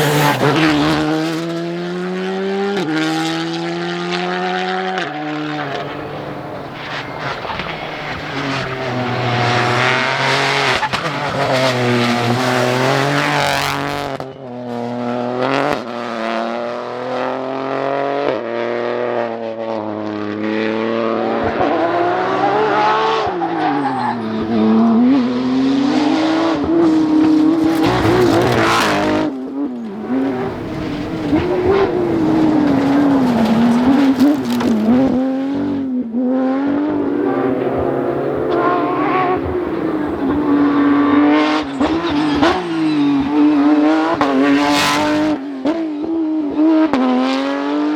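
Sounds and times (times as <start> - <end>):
tyres skidding: 0.0 - 1.7, 4.9 - 14.0, 27.3 - 35.6, 36.8 - 45.4
rally car engines revving: 0.0 - 47.9.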